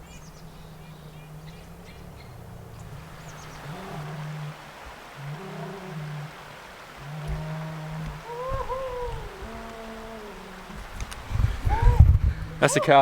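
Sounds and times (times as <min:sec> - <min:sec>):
bird chirps: 0:00.0 - 0:03.7
cow mooing: 0:00.0 - 0:10.9.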